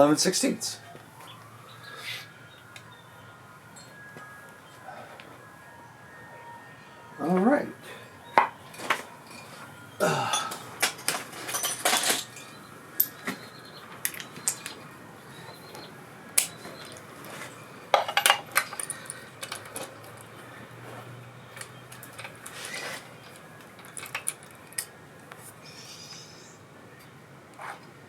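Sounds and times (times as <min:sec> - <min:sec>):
metal tools clinking: 0:08.4 - 0:14.9, 0:16.4 - 0:20.4, 0:21.6 - 0:24.9.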